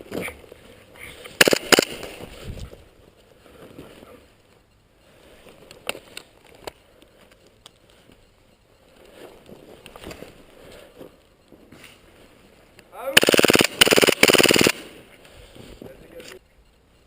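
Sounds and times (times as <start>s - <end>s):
loud sharp cracks: 1.4s - 2.2s, 13.2s - 15.0s.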